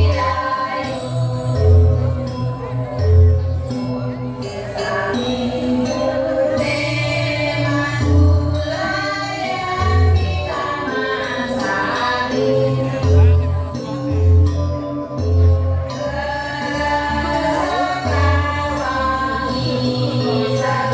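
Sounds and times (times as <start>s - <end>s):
group of voices singing in chorus: 0.0s - 20.9s.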